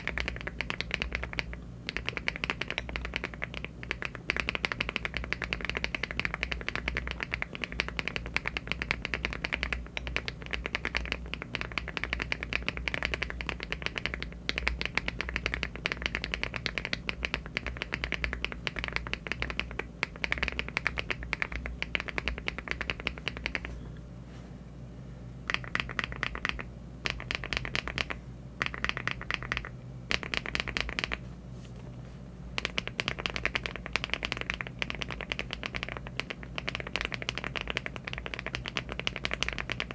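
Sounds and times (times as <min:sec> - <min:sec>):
mechanical keyboard typing: 0:00.0 - 0:23.7, 0:25.5 - 0:31.2, 0:32.6 - 0:39.9.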